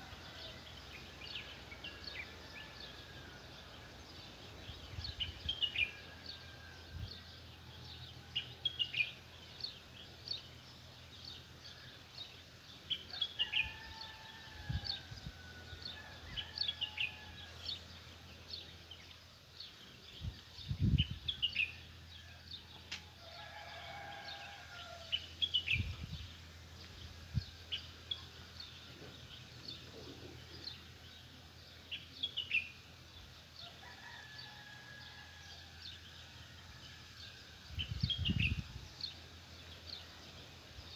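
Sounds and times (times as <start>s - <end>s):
small songbirds chirping: 0.0s - 40.9s
rooster crowing: 13.4s - 17.7s, 23.2s - 25.2s, 33.6s - 37.4s.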